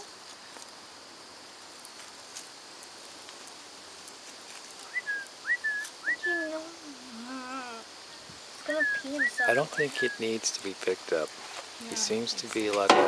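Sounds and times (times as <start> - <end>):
faint high hiss: 0.0 - 13.0
small bird chirping: 4.8 - 10.4.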